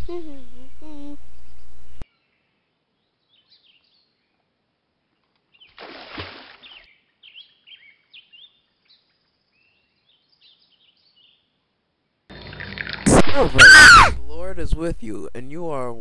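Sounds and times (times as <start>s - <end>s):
birds chirping: 6.6s - 11.5s
burst of noise: 13.0s - 14.4s.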